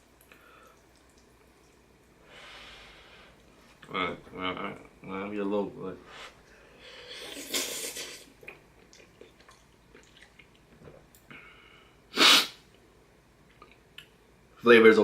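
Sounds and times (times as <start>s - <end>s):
man eating with mouth sounds: 6.5s - 11.5s
sharp burst of breath: 11.4s - 12.6s.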